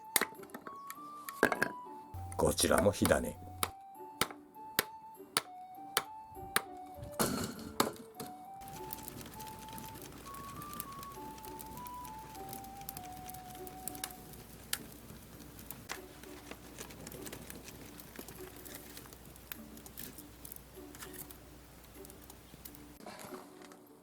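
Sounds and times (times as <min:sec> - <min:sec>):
background melody: 0:00.0 - 0:24.0
wood fire crackling: 0:02.1 - 0:24.0.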